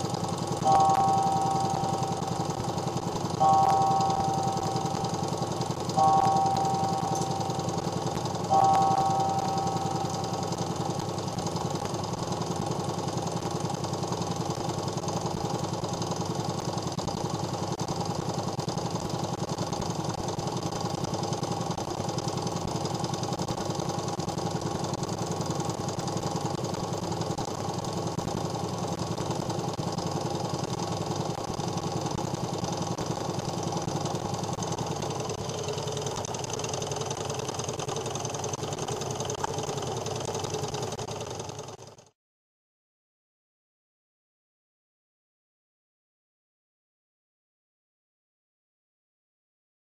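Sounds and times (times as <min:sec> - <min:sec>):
stirling engine rattling: 0:00.0 - 0:42.1.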